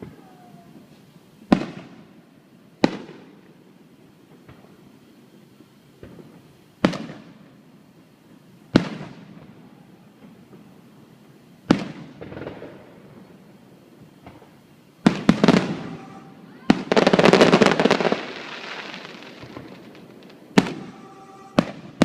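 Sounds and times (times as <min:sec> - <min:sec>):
fireworks bangs: 0:00.0 - 0:03.7, 0:04.3 - 0:07.6, 0:08.3 - 0:22.0
faint firework pops: 0:04.4 - 0:04.8, 0:06.0 - 0:07.4, 0:14.2 - 0:15.9.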